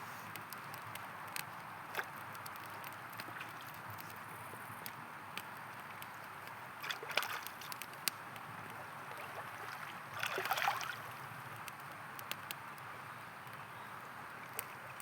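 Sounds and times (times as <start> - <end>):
campfire crackling and popping: 0.2 - 15.0
river flowing: 9.0 - 11.2.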